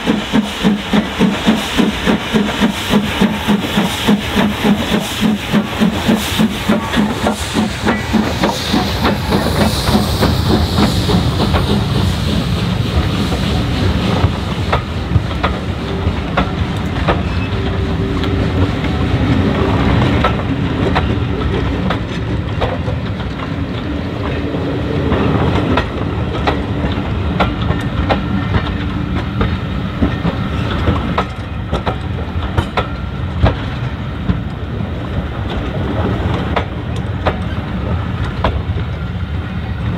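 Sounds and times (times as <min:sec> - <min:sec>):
steam hiss: 0:00.0 - 0:21.3
steam train running: 0:00.0 - 0:39.9.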